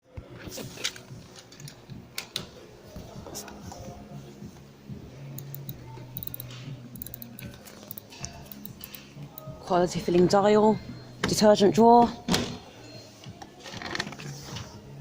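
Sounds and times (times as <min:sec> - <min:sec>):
faint background music: 0:00.0 - 0:15.0
sharp clicks and taps: 0:05.4 - 0:09.5.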